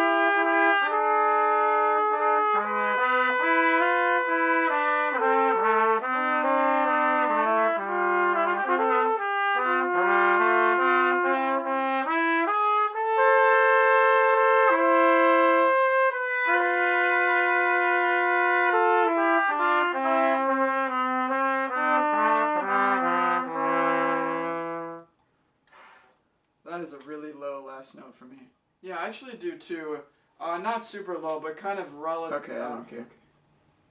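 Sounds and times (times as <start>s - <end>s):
two trumpets playing a duet: 0.0s - 25.1s, 25.7s - 26.1s.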